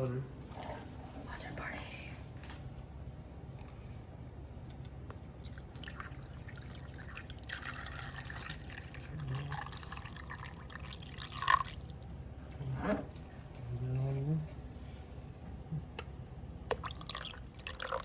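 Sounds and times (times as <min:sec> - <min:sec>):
water pouring into reservoir: 0:05.4 - 0:12.0, 0:16.7 - 0:18.0.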